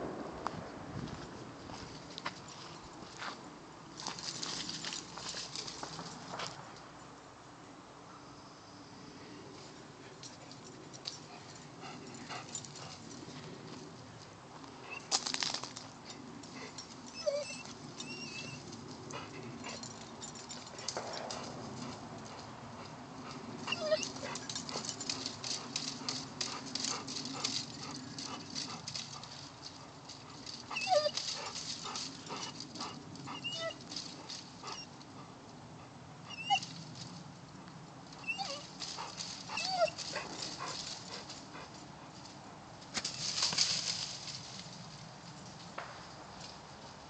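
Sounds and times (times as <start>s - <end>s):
dog whimpering: 17.1s - 18.6s, 23.7s - 24.4s, 30.7s - 31.2s, 33.3s - 33.8s, 36.3s - 36.7s, 38.2s - 38.7s, 39.5s - 40.0s
clicking and rustling: 23.9s - 35.1s.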